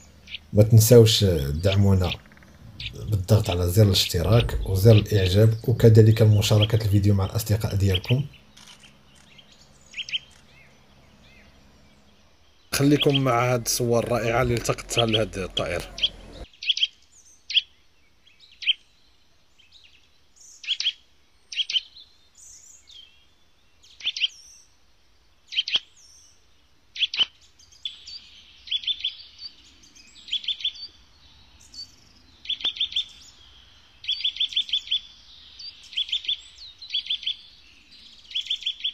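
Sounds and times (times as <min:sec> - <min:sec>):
bird chirping sharply: 0:00.0 - 0:16.9.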